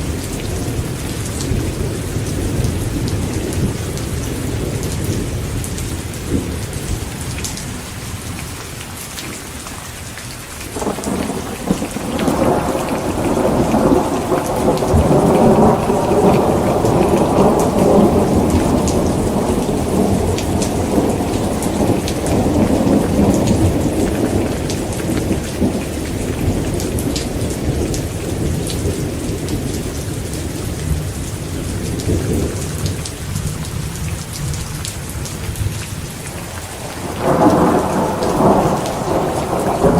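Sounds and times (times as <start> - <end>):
heavy rain falling: 0.0 - 39.9
thunder rumbling: 10.8 - 39.9.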